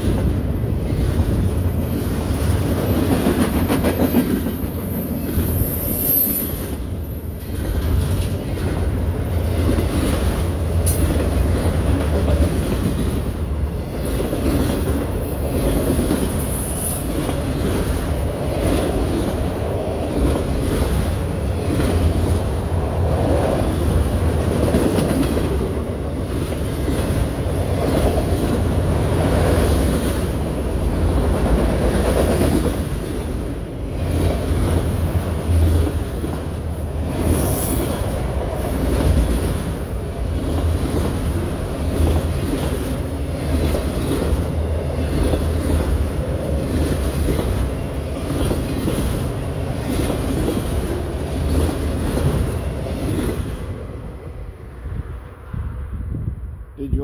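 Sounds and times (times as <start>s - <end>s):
clickety-clack over rail joints: 0.0s - 54.2s
freight train rumble and clatter: 0.0s - 57.0s.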